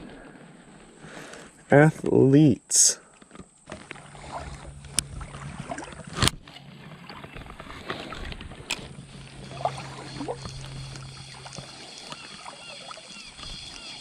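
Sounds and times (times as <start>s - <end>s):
steady low hum: 3.0s - 14.0s
water sloshing in a creek: 3.1s - 14.0s.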